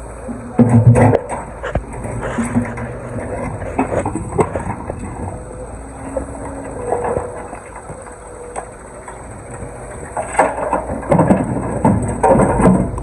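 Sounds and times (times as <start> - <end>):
low engine rumble: 0.0 - 13.0
stones and rubble clattering: 10.1 - 13.0.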